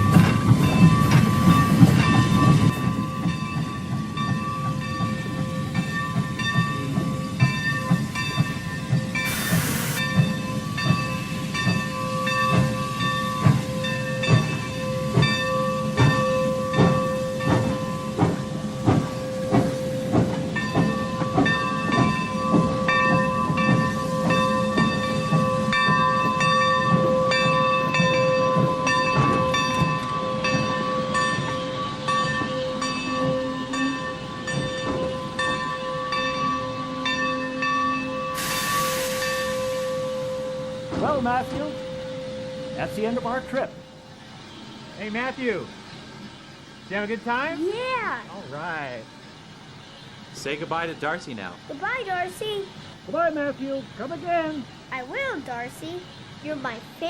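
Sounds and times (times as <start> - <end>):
locomotive bell ringing: 0.0 - 45.8
train rolling rumble: 0.0 - 57.0
steam hiss: 8.4 - 11.9, 15.7 - 21.1, 38.1 - 43.4.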